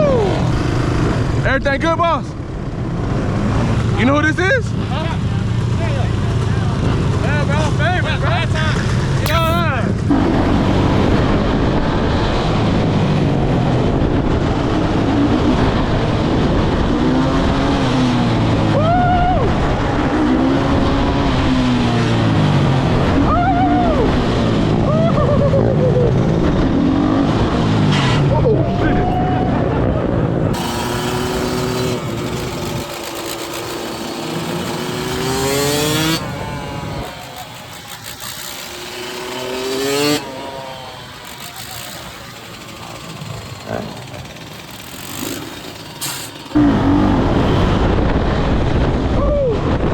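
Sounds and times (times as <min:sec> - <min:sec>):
dirt bike engine running: 0:04.8 - 0:12.6, 0:29.8 - 0:49.1.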